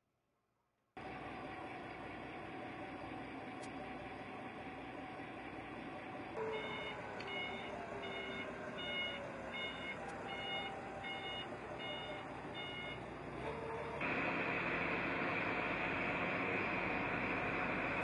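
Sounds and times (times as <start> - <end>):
engine hum: 1.0 - 18.0
reversing alarm beeping: 6.4 - 13.4.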